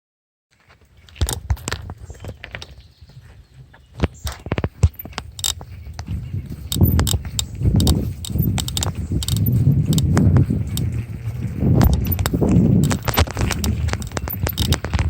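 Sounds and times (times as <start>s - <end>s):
bicycle rattling clicks and knocks: 4.0s - 15.0s
low rumble: 5.7s - 15.0s.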